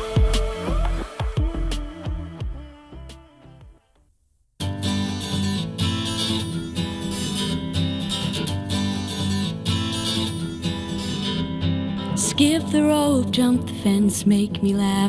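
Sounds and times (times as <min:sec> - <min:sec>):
strummed acoustic guitar: 0:04.6 - 0:15.0.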